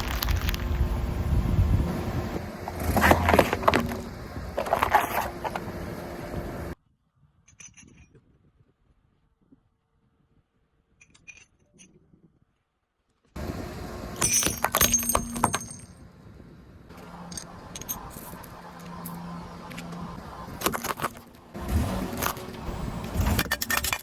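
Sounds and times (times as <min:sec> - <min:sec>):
low car hum: 0:00.0 - 0:06.8, 0:13.4 - 0:23.9.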